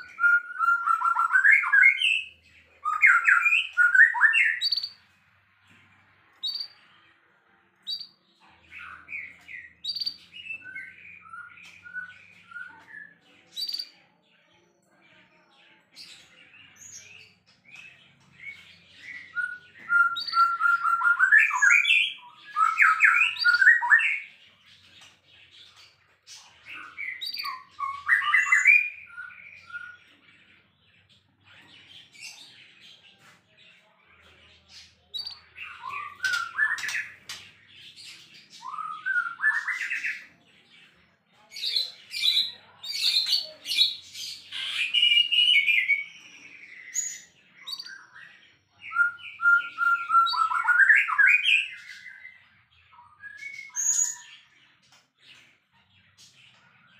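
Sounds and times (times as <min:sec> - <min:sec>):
bird song whistles and harsh notes: 0:00.0 - 0:05.1, 0:06.3 - 0:06.8, 0:07.9 - 0:13.9, 0:16.8 - 0:30.3, 0:34.7 - 0:40.3, 0:41.6 - 0:48.2, 0:48.8 - 0:55.0.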